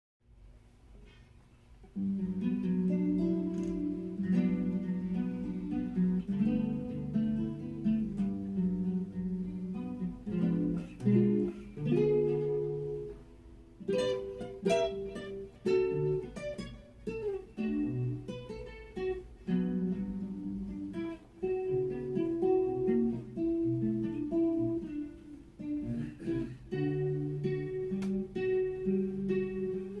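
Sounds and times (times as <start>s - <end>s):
plucked acoustic guitar: 1.8s - 30.0s.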